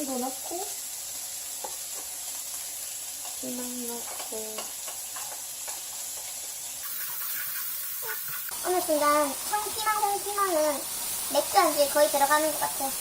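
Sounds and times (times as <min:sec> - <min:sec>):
vegetables sizzling in a frying pan: 0:00.0 - 0:13.0
utensil stirring with clicks and scrapes: 0:01.6 - 0:08.6.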